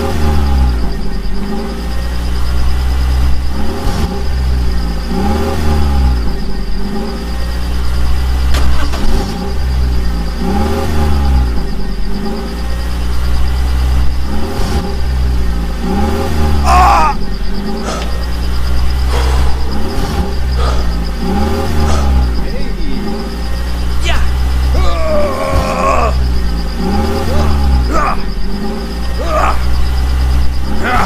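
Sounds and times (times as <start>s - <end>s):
engine revving: 0.0s - 31.0s
click: 17.9s - 18.2s.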